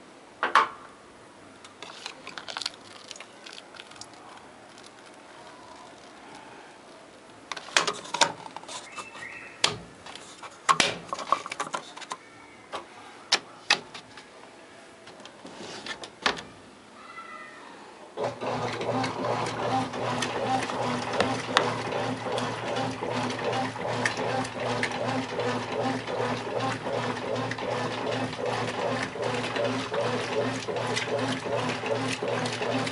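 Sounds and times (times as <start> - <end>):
washing machine humming: 18.2 - 32.9.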